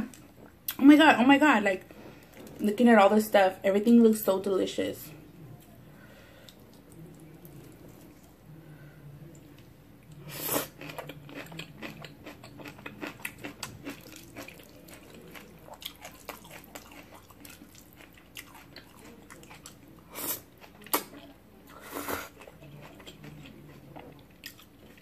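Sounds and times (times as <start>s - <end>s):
wet chewing clicks and smacks: 10.8s - 19.8s.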